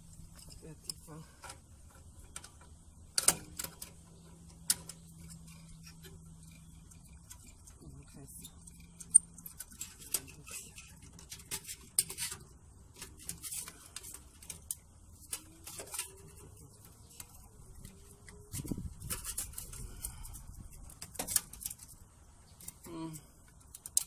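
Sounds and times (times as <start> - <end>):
tools clicking and knocking: 0.2 - 7.8, 23.5 - 24.0.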